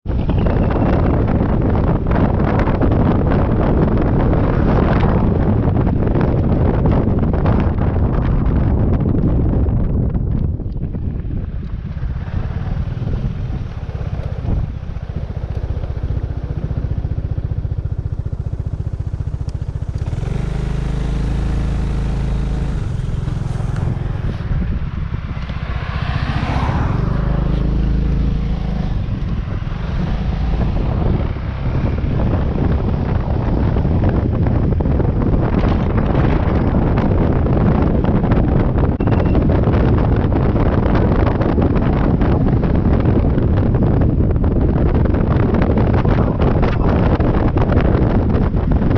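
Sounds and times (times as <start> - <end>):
road noise: 0.0 - 48.9
wind buffeting microphone: 0.0 - 48.9
scooter engine: 10.8 - 39.0.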